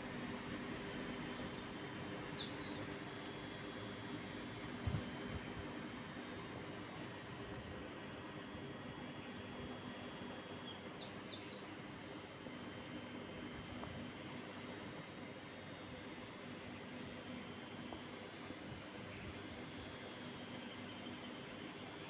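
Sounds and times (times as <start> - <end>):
songbird chirping and trilling: 0.0 - 3.2, 7.3 - 14.5
steady background hum: 0.0 - 22.0.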